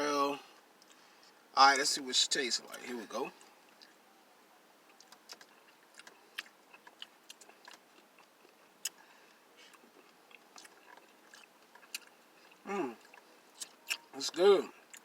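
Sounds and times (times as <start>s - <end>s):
quiet chewing: 0.8s - 1.4s, 3.3s - 4.1s, 4.8s - 15.0s
wet mouth clicks and smacks: 5.0s - 7.8s.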